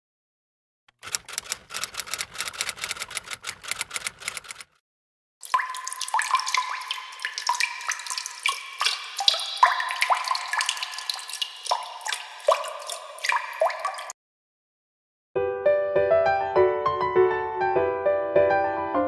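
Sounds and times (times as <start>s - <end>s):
water dripping: 5.4s - 14.2s.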